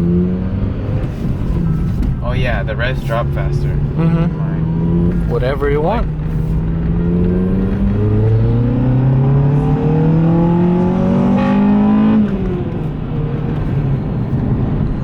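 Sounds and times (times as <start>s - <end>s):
car engine accelerating through gears: 0.0s - 15.0s.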